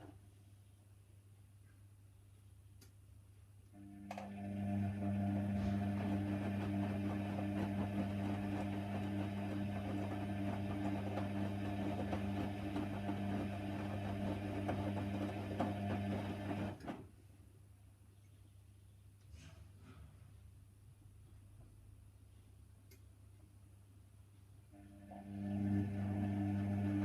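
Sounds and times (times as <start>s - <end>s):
washer-dryer electric hum: 3.7s - 17.1s, 24.7s - 27.0s.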